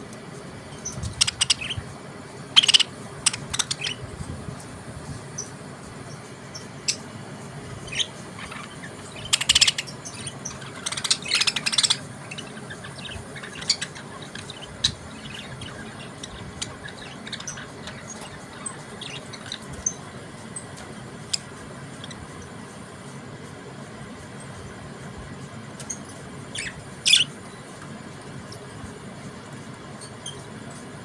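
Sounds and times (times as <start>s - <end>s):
budgerigars chirping: 0.8s - 1.9s, 2.6s - 4.0s, 6.5s - 7.1s, 7.8s - 20.0s, 25.8s - 27.4s.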